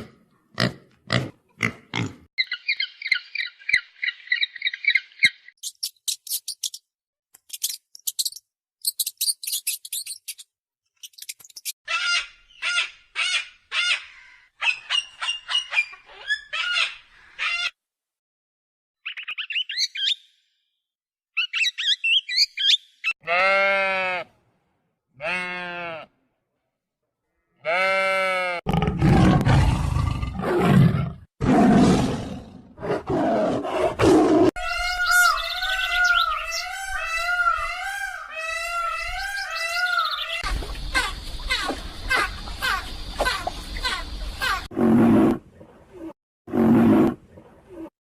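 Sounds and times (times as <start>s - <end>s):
high thin bird chirps: 2.4s - 12.9s
long bleat: 23.2s - 24.3s, 25.2s - 26.2s, 27.6s - 28.7s
bird squawks: 34.6s - 44.6s.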